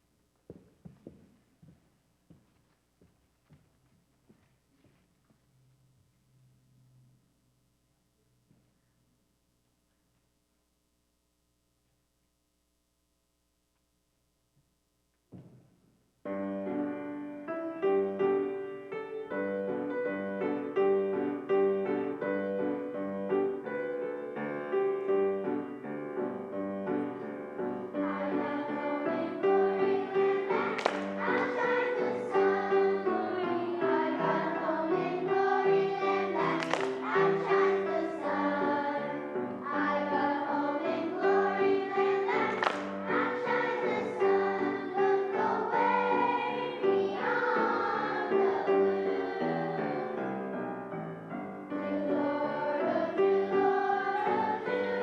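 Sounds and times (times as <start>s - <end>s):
keyboard accompaniment: 16.3s - 55.0s
choir singing: 27.7s - 50.6s, 51.7s - 55.0s.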